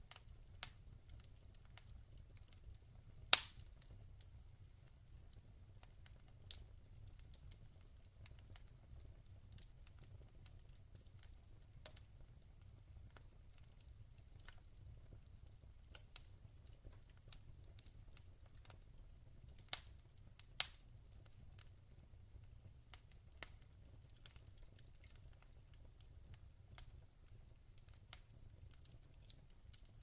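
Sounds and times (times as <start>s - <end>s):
log fire crackling: 0.0s - 30.0s.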